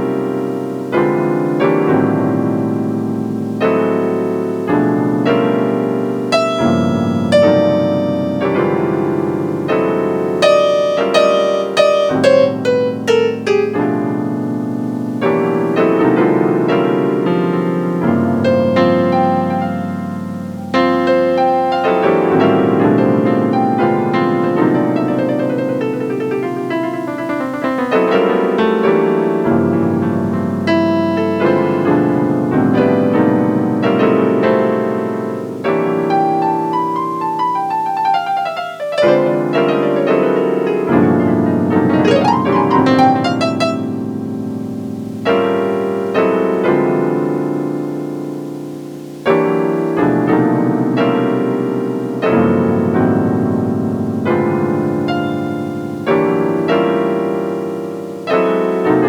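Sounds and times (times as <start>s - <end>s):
electric piano chords: 0.0s - 59.0s
sliding pitch sweeps: 41.8s - 44.1s.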